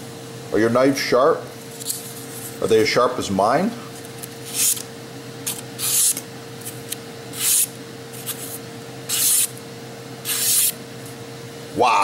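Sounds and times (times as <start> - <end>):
knife slicing through paper: 7.4 - 9.5, 10.3 - 10.8.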